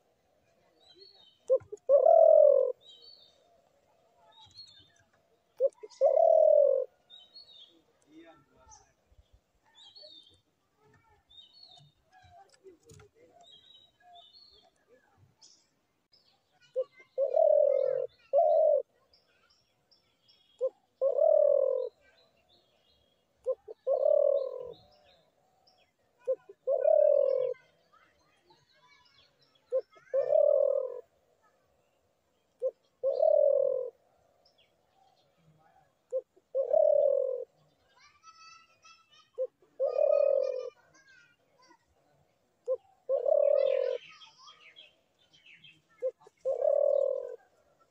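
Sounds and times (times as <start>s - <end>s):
faint small bird chirps: 0.5s - 3.5s, 4.1s - 42.1s, 42.7s - 47.9s
dove cooing: 1.4s - 3.5s, 5.4s - 7.1s, 16.7s - 19.0s, 20.6s - 22.1s, 23.4s - 25.0s, 26.2s - 27.7s, 29.7s - 31.1s, 32.6s - 34.0s, 35.6s - 37.6s, 39.3s - 40.9s, 42.6s - 44.2s, 45.9s - 47.9s.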